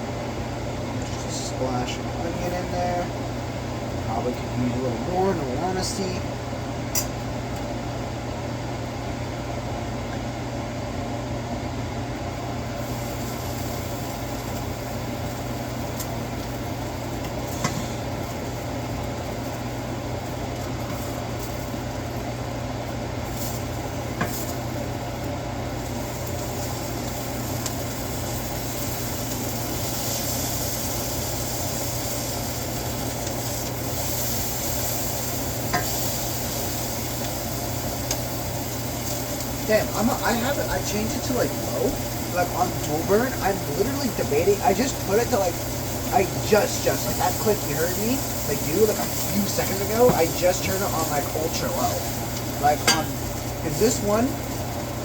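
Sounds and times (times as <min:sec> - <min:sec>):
tacos sizzling in a pan: 0:11.2 - 0:55.0.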